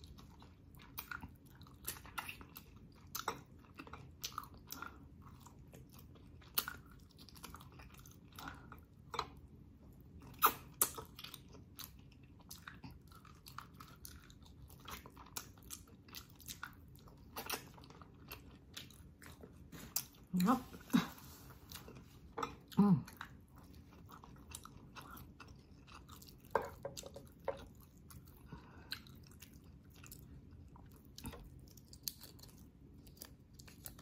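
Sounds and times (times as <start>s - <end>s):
close chewing of meat: 0.0s - 34.0s
wet mouth smacks and clicks: 10.4s - 11.1s.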